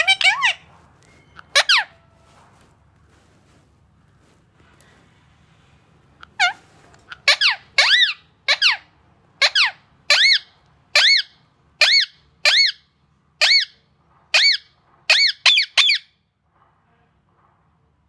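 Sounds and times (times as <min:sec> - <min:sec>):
parrot squeaky calls: 0:00.0 - 0:02.0, 0:06.3 - 0:12.8, 0:13.4 - 0:16.1.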